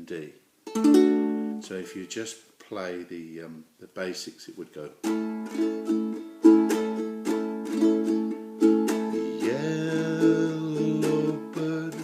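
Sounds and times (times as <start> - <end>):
ukulele strumming: 0.6 - 1.7, 5.0 - 12.0
man singing: 9.0 - 12.0.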